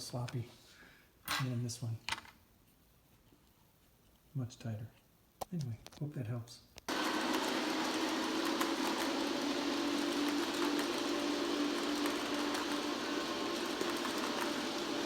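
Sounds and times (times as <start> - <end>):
model train motor hum: 6.9 - 15.0.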